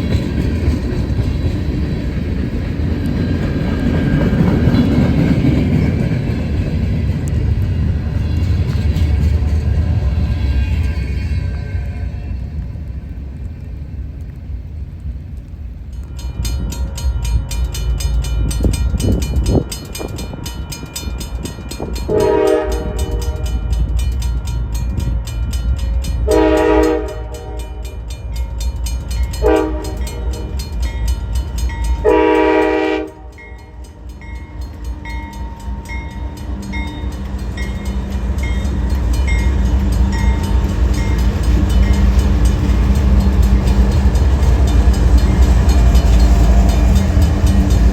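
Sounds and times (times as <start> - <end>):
train rumble: 0.0 - 47.9
locomotive horn: 22.1 - 23.6, 26.3 - 28.0, 29.4 - 30.6, 32.0 - 33.5.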